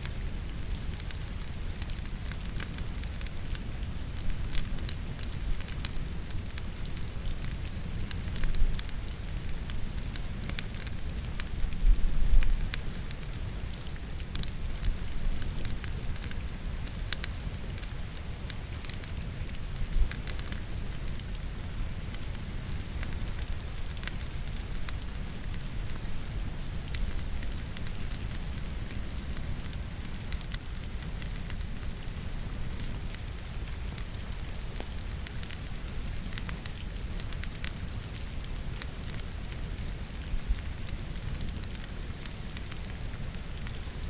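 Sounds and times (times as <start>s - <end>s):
firewood crackling and popping: 0.0s - 44.0s
rain pattering: 0.0s - 44.0s.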